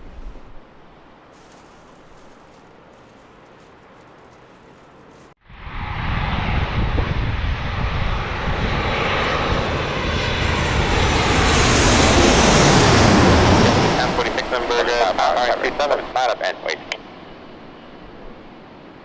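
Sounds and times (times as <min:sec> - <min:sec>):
jet engines roaring: 0:05.5 - 0:19.0.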